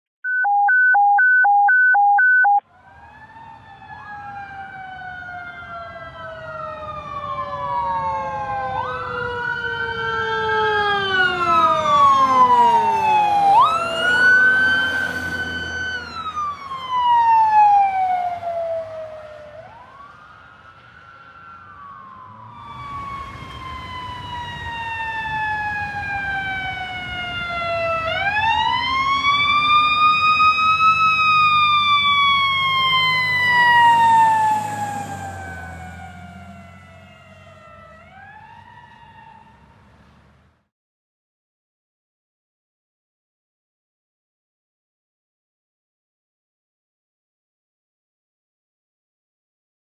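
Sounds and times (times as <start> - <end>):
short two-tone beeps: 0.2 - 2.6
fire truck sirens wailing: 0.4 - 40.2
truck engines rumbling: 2.8 - 40.6.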